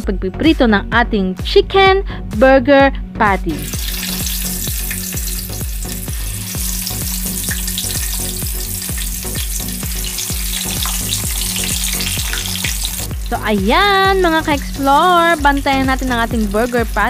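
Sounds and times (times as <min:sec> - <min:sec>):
patties sizzling in oil: 0:03.5 - 0:17.0.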